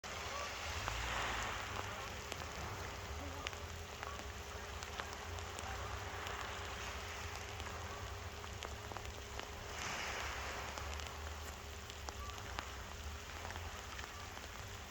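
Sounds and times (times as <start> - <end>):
small waves washing onto shore: 0.0 - 14.9
splashing water ticks: 0.0 - 14.9.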